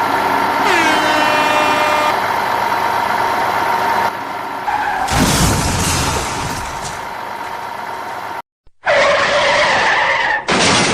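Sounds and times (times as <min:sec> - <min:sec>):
vehicle engine hum: 0:00.0 - 0:08.4.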